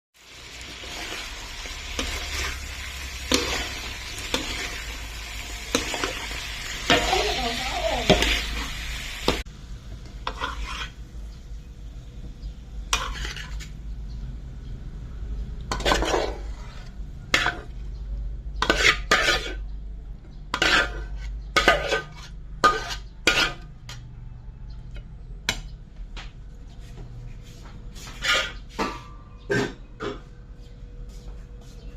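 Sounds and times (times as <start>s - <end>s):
food sizzling in a pan: 0.2s - 11.1s
spatula scraping a pan: 0.3s - 9.4s, 10.2s - 11.1s, 12.8s - 13.8s, 15.7s - 18.0s, 18.6s - 19.8s, 20.4s - 24.0s, 28.0s - 30.2s.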